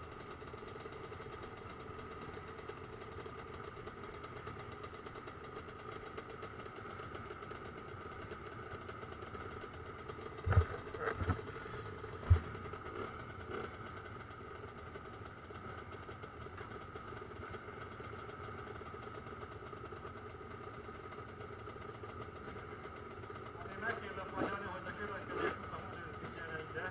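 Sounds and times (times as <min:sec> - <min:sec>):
motorcycle engines running: 0:00.0 - 0:26.9
sharp thumps: 0:10.4 - 0:11.5, 0:12.2 - 0:12.6.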